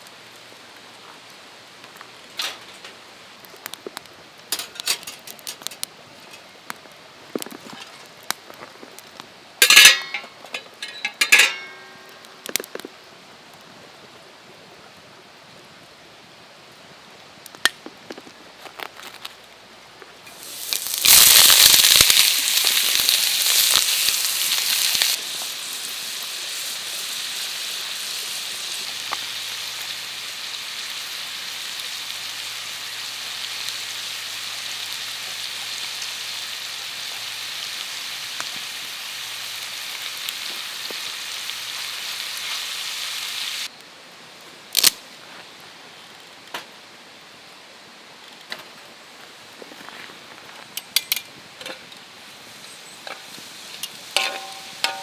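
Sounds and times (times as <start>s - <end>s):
food sizzling in a pan: 9.6s - 12.3s, 20.3s - 43.7s, 51.8s - 55.0s.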